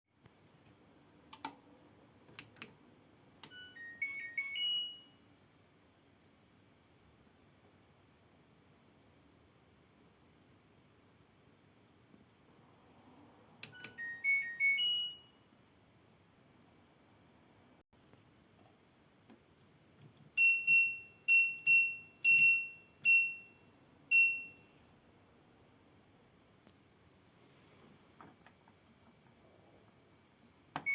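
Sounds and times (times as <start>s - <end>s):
washing machine electronic beeps: 3.4s - 5.2s, 13.6s - 15.5s, 20.3s - 24.8s.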